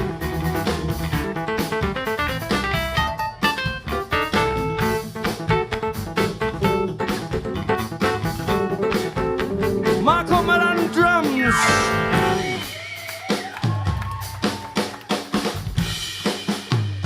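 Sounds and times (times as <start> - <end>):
live band playing instrumental: 0.0 - 17.0
lead guitar bending notes: 8.7 - 12.6
long falling sweep: 11.4 - 12.6.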